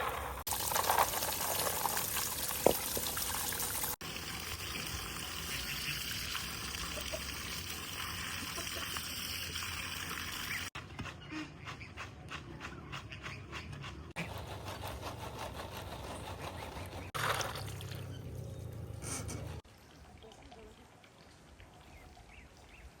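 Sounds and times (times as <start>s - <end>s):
water trickling: 0.5s - 10.8s, 17.2s - 18.9s, 19.6s - 23.0s.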